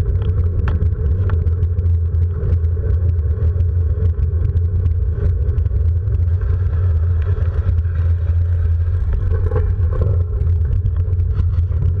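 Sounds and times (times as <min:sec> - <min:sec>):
low rumble of moving ride: 0:00.0 - 0:12.0.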